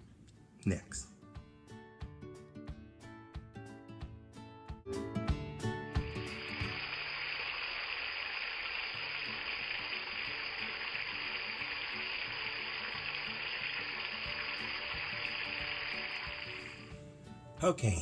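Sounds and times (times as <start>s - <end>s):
water hissing: 6.2s - 16.9s.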